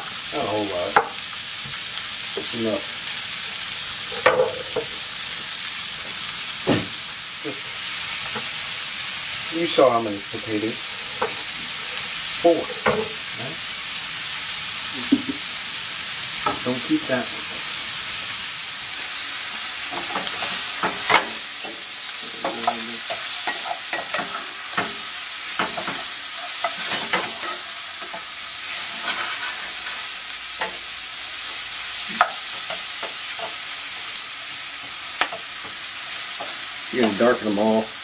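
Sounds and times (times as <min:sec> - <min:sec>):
sausage and onions sizzling in a pan: 0:00.0 - 0:38.0
wooden spoon scraping and tapping pan: 0:11.2 - 0:11.5.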